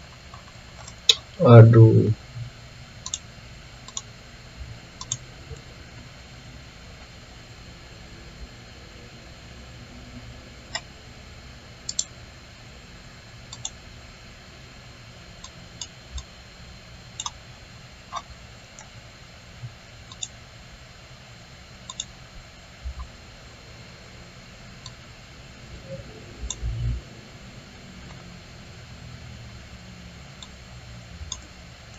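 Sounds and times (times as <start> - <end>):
computer mouse clicking: 0.2 - 1.3, 3.0 - 4.1, 5.0 - 5.2, 10.7 - 10.9, 11.8 - 12.1, 13.5 - 13.8, 15.4 - 16.3, 17.2 - 17.4, 20.1 - 20.4, 21.8 - 22.1, 24.8 - 25.0, 26.4 - 26.7, 31.3 - 31.5.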